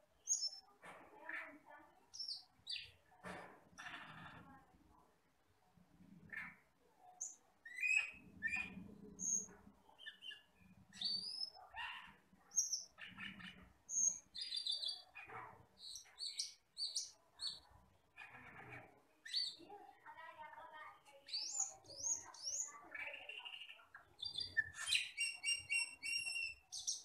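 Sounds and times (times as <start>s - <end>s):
bird chirping and whistling: 7.7s - 8.6s, 24.2s - 27.0s.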